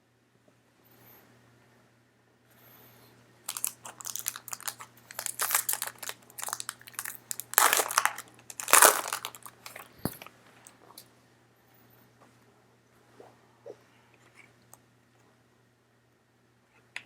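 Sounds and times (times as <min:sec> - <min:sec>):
wrapper crinkling: 0:03.5 - 0:10.3.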